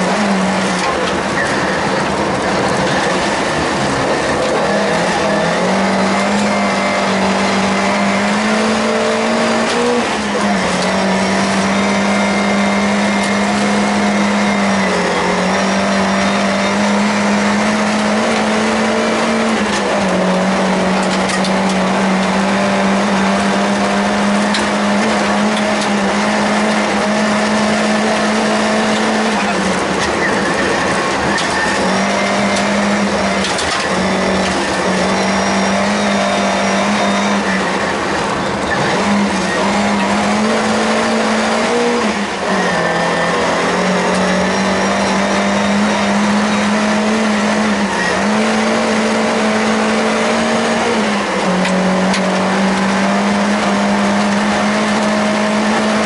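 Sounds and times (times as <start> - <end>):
car engine at high revs: 0.0 - 56.0.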